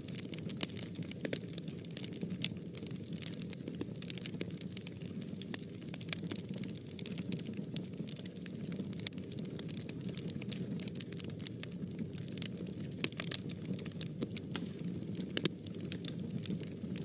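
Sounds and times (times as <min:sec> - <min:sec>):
fire crackling and popping: 0:00.0 - 0:17.0
fire flames rushing: 0:00.0 - 0:17.0.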